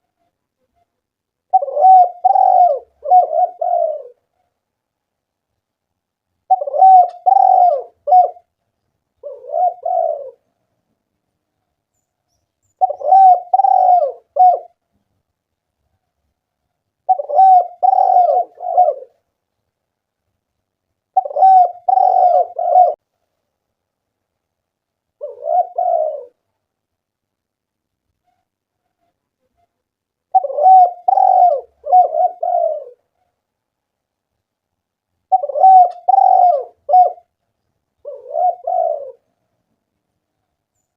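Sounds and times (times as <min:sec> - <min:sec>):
dove cooing: 0:01.5 - 0:04.3, 0:06.5 - 0:08.6, 0:09.2 - 0:10.5, 0:12.7 - 0:14.8, 0:17.0 - 0:19.3, 0:21.1 - 0:23.0, 0:25.2 - 0:26.4, 0:30.3 - 0:33.1, 0:35.3 - 0:37.4, 0:38.0 - 0:39.4.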